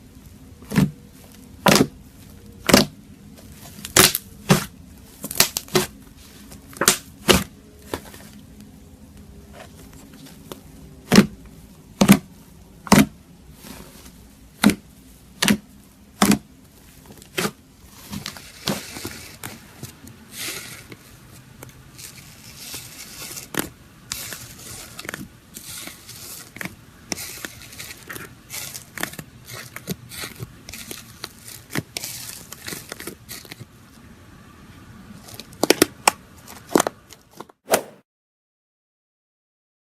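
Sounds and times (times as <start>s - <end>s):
slime popping and crackling: 2.6s - 3.0s, 3.8s - 6.0s.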